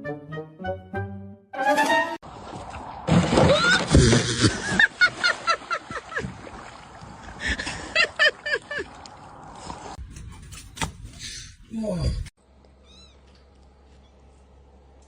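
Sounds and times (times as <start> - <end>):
short squeaky animal calls: 12.8 - 13.3.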